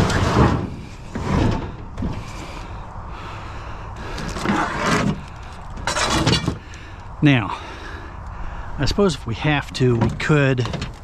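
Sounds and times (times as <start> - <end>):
metal cabinet scraping and knocking: 0.0 - 2.5, 5.8 - 6.6.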